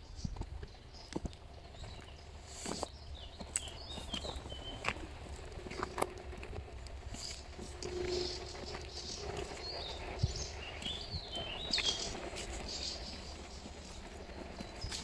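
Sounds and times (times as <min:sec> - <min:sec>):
low rumble: 0:03.7 - 0:15.0.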